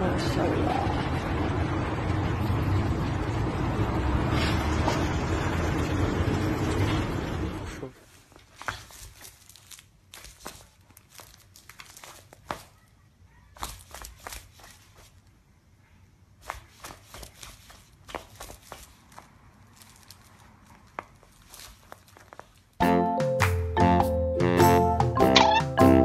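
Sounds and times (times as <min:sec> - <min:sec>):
rustling of fabric toy: 0:07.9 - 0:15.4, 0:16.3 - 0:22.8
claws clicking on floor: 0:08.2 - 0:12.9, 0:13.5 - 0:15.3, 0:16.4 - 0:22.8.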